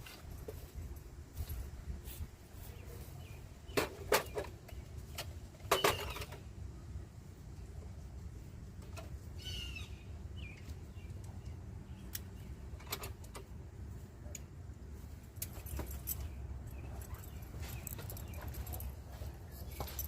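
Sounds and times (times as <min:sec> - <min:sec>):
bird chirps: 0:09.4 - 0:12.6.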